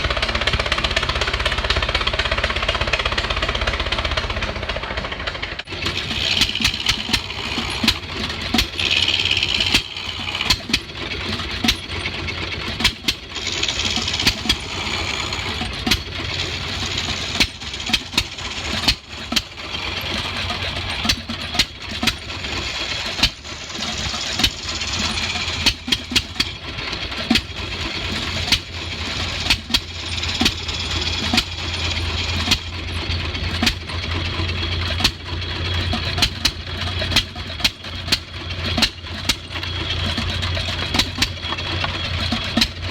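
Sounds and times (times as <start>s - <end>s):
engine humming: 0.0s - 42.9s.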